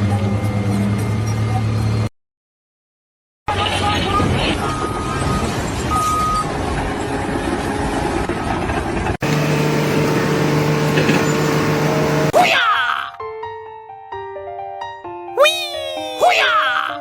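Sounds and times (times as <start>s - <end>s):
vehicle engine noise: 0.0s - 2.1s, 3.5s - 12.4s
low engine drone: 7.0s - 12.4s.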